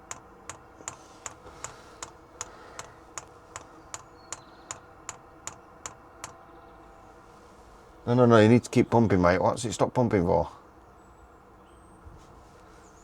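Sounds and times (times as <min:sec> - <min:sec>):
fuel pump ticking: 0:00.0 - 0:06.4.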